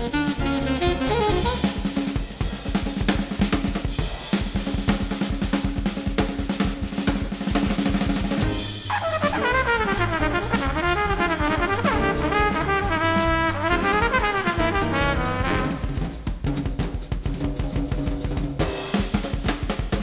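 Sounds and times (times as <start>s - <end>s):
jazz horns: 0.0s - 4.4s, 7.9s - 16.6s
drum kit rapid strokes: 0.0s - 20.0s.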